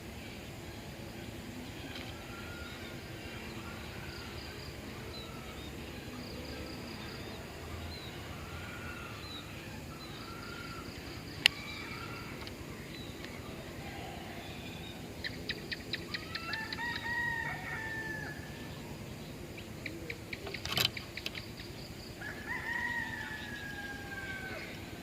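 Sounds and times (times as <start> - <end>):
insects hissing: 0.0 - 25.0
bird calling: 1.5 - 25.0.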